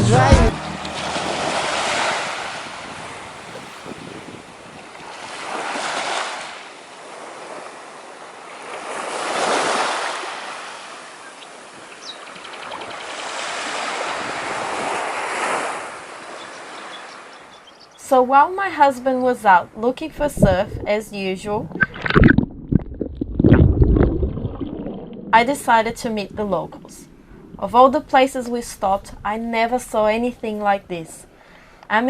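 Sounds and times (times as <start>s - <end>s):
ocean waves washing in: 0.0s - 17.4s.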